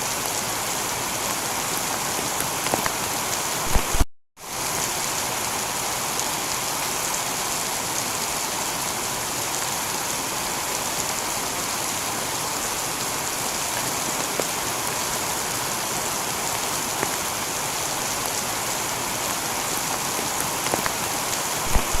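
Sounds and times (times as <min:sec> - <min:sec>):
heavy rain on a tiled roof: 0:00.0 - 0:22.0
single raindrop ticks: 0:20.6 - 0:21.0.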